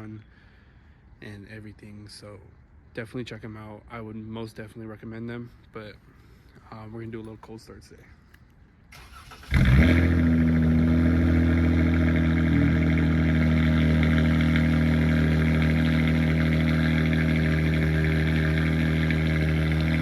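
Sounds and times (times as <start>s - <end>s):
car engine cold-starting and idling: 8.9s - 20.0s.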